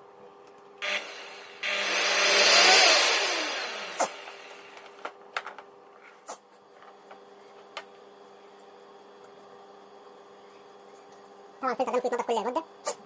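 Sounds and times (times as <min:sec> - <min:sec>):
vacuum cleaner motor winding down: 0:00.8 - 0:05.1
faint steady hum: 0:03.2 - 0:13.0.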